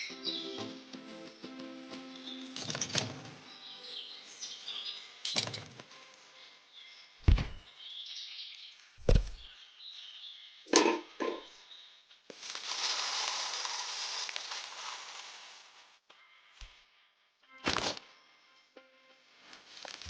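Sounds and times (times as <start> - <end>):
sharp knocks: 7.3 - 7.6.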